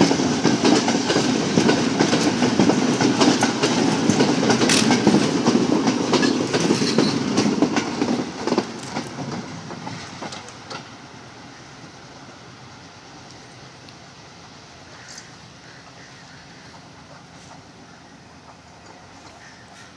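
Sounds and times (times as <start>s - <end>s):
train wheels clattering over rail joints: 0.0s - 11.0s, 18.4s - 19.9s.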